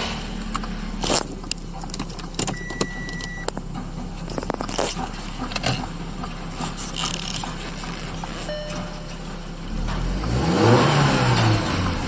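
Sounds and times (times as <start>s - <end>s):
light clicks and scrapes: 6.5s - 8.5s.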